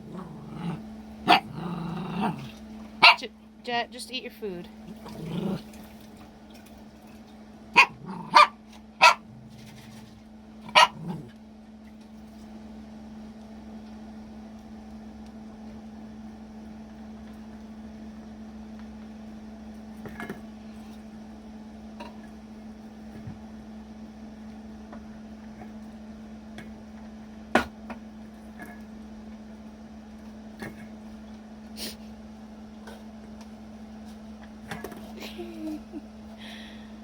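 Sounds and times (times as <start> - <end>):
steady low hum: 0.0 - 37.0
dog barking: 1.2 - 1.6, 3.0 - 3.3, 7.8 - 9.3, 10.7 - 11.2.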